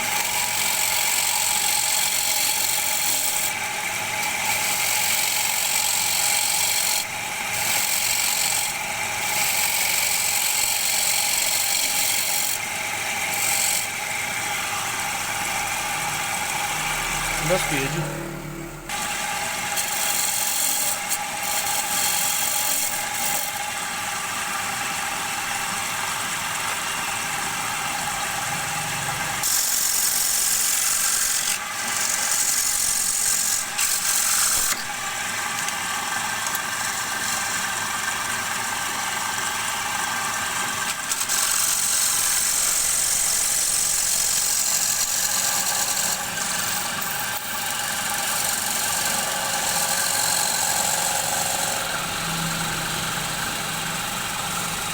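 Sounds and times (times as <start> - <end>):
wood lathe motor hum: 0.0 - 54.9
turning tool scraping wood: 4.2 - 14.1, 18.9 - 23.7, 29.4 - 37.8, 40.8 - 51.8.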